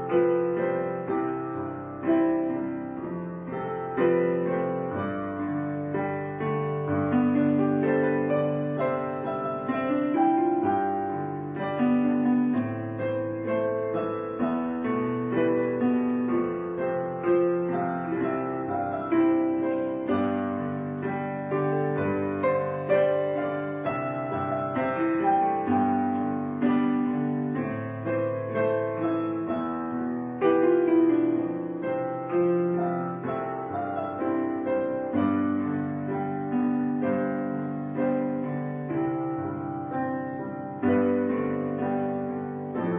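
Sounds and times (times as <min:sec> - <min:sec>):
slow piano music: 0:00.0 - 0:42.9.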